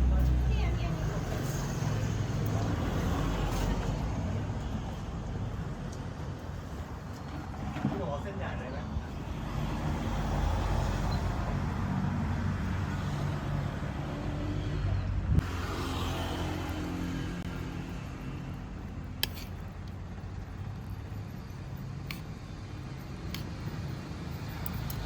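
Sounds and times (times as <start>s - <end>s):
traffic engines humming: 0.0s - 25.0s
sharp click: 19.2s - 19.6s.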